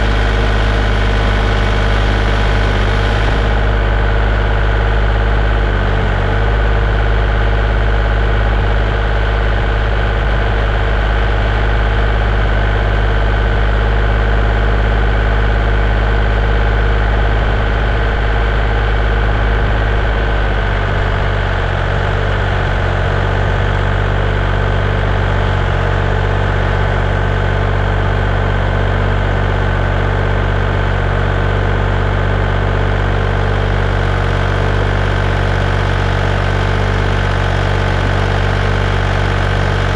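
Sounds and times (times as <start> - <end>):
heavy equipment engine idling: 0.0 - 39.9.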